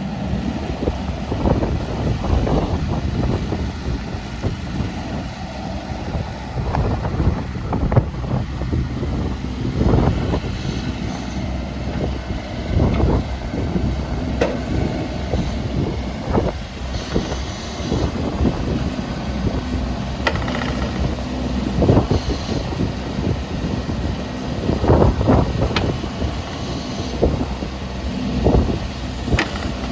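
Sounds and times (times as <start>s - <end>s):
diesel engine running: 0.0s - 29.9s
wind buffeting microphone: 0.0s - 29.9s
machine knocks and clanks: 20.2s - 21.2s, 29.3s - 29.9s.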